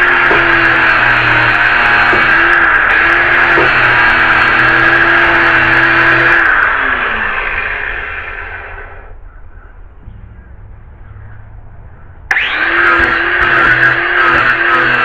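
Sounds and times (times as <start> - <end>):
electric power tool running: 0.0 - 9.1, 12.3 - 15.0.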